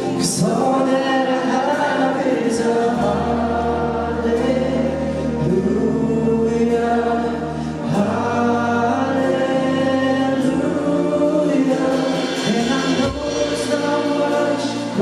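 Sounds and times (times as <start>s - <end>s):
voices singing: 0.0s - 15.0s.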